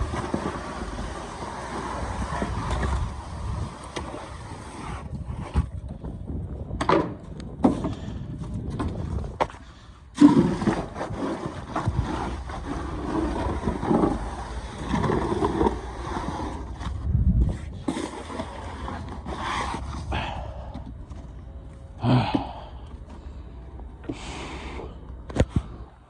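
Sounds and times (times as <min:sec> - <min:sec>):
wind rumbling on microphone: 0:00.0 - 0:21.1
snow scraping and crunching: 0:10.2 - 0:20.1.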